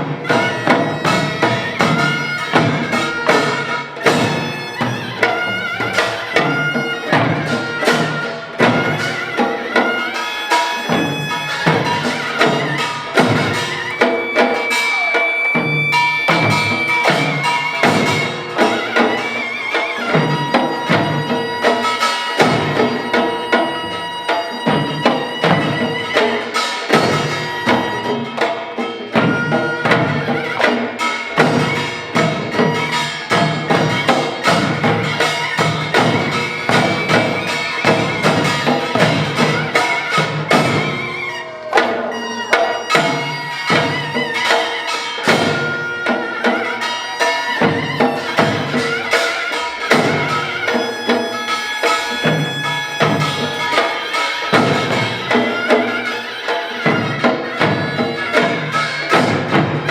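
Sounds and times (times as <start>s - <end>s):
percussion ensemble playing: 0.0s - 59.9s
high wavering held tone: 9.0s - 28.3s.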